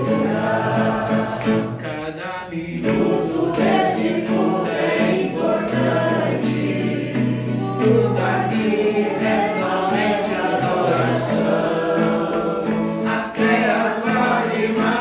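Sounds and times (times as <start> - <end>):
group singing worship song: 0.0 - 15.0.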